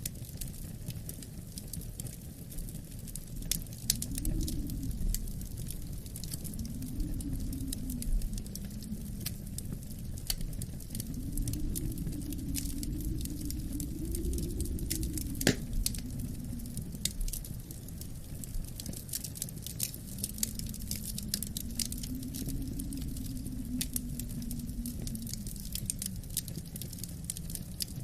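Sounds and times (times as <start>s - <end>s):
wood fire crackling: 0.0s - 28.0s
low wind moaning: 1.9s - 28.0s
loud crack: 15.4s - 15.7s.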